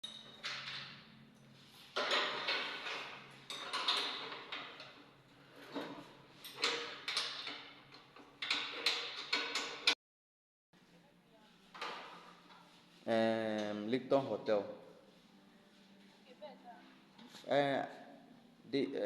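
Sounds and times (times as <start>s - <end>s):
treadmill parts clattering and knocking: 2.0s - 5.0s, 5.6s - 10.0s.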